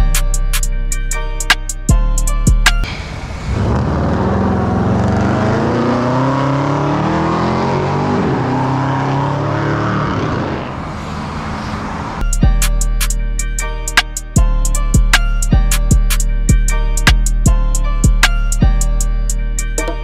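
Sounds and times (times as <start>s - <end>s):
car engine revving: 2.8s - 12.3s.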